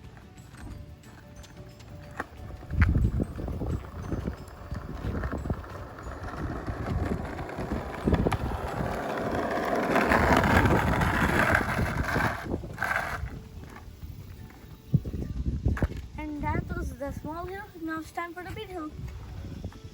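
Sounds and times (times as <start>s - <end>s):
skateboard wheels rolling on pavement: 0.0s - 19.9s
skateboard knock: 2.1s - 12.4s
wind buffeting microphone: 2.4s - 19.9s.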